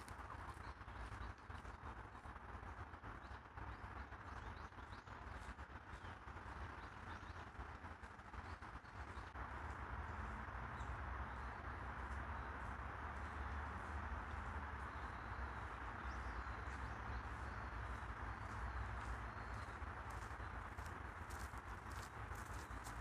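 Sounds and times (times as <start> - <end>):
footsteps on path: 0.0 - 2.2, 9.0 - 23.0
distant city traffic hum: 0.0 - 23.0.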